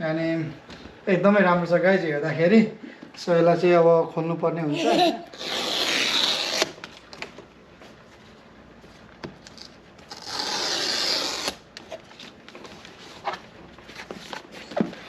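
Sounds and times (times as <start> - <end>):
wrapping tearing: 5.3 - 7.1, 9.4 - 12.4.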